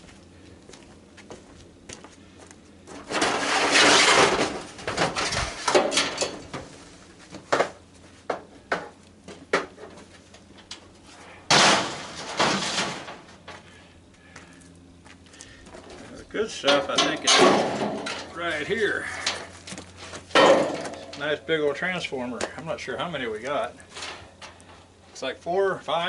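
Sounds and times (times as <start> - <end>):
metal parts scraping and rattling: 2.9 - 6.7, 10.6 - 13.8, 15.8 - 21.6, 23.7 - 24.9.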